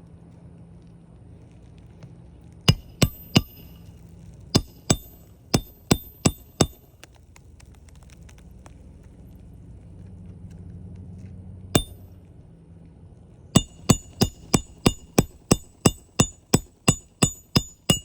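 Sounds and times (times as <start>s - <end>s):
hammer striking metal tool: 2.7s - 3.9s, 4.5s - 6.8s, 11.8s - 12.1s, 13.6s - 18.0s.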